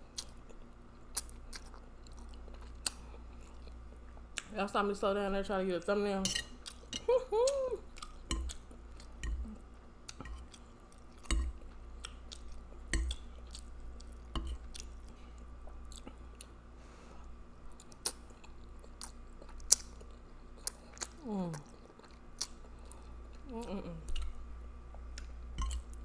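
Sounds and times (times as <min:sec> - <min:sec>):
wet chewing: 0:06.6 - 0:16.6.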